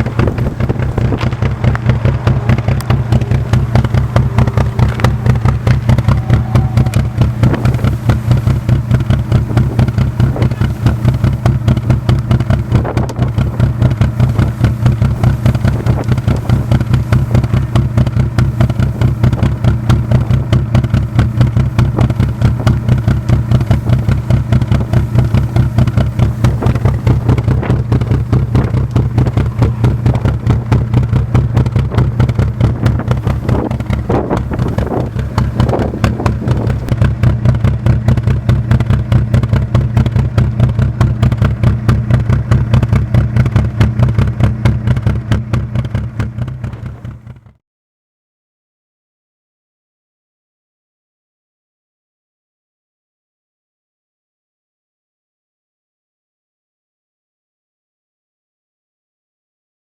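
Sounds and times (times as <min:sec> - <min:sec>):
diesel engine idling: 0:00.0 - 0:47.6.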